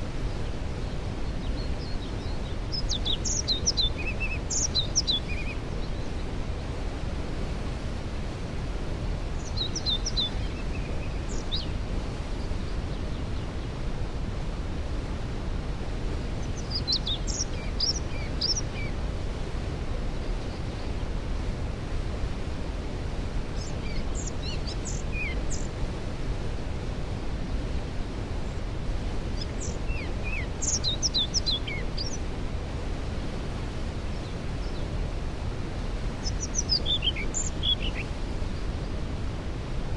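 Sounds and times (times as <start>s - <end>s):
songbird singing: 0.0s - 6.5s, 9.1s - 13.7s, 16.4s - 19.0s, 23.2s - 26.8s, 28.4s - 32.5s, 33.4s - 39.0s
waterfall rushing: 21.1s - 39.9s.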